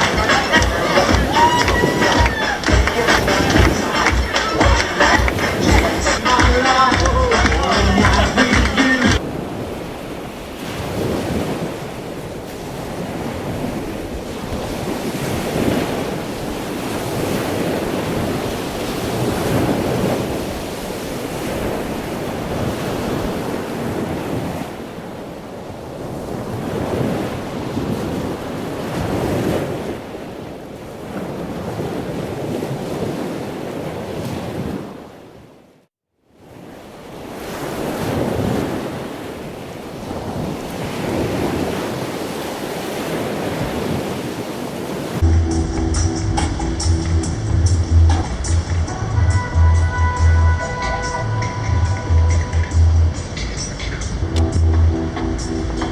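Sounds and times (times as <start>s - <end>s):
wind buffeting microphone: 0.0s - 7.3s
sea rushing: 0.0s - 35.6s, 36.3s - 55.9s.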